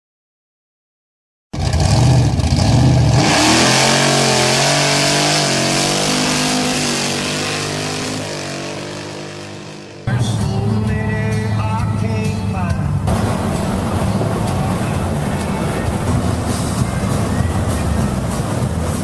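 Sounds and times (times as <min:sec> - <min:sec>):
car engine revving: 0:01.6 - 0:19.0.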